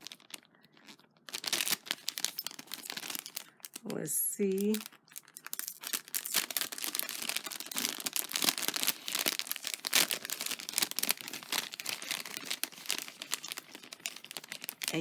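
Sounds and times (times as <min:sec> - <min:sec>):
packaging crinkling: 0:00.0 - 0:15.0.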